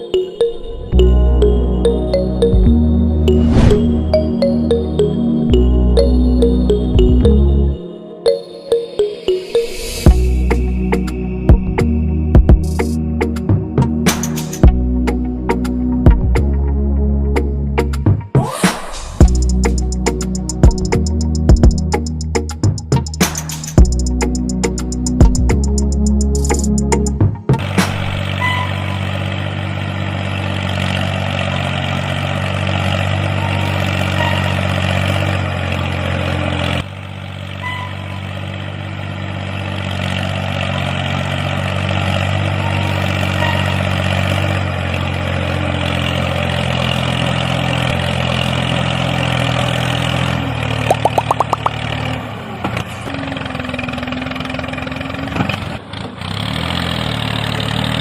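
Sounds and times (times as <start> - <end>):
small engine running: 27.6 - 50.9.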